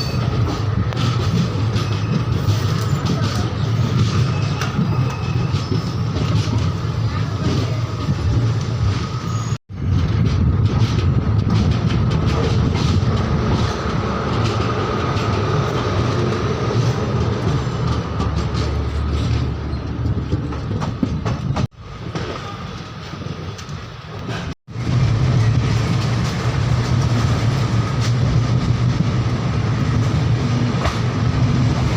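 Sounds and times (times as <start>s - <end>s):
train rumbling on track: 0.0s - 31.9s
train wheel clatter: 0.0s - 31.9s.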